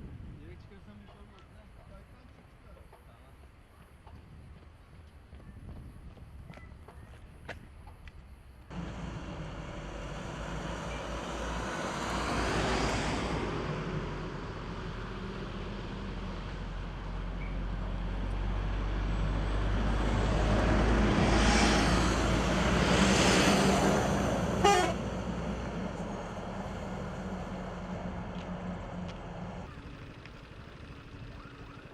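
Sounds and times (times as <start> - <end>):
engine hum: 7.8 - 31.9
vehicles passing: 8.6 - 31.9
car horn toot: 24.6 - 25.0.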